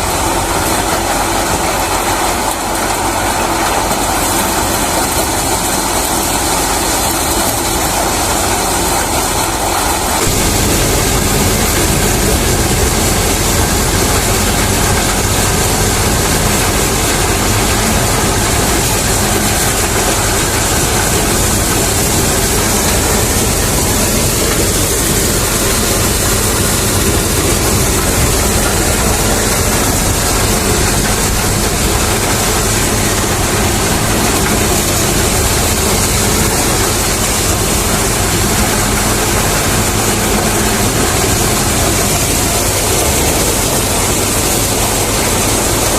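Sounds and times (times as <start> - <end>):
tractor engine: 0.0 - 45.9
threshing drum rushing: 9.4 - 45.9.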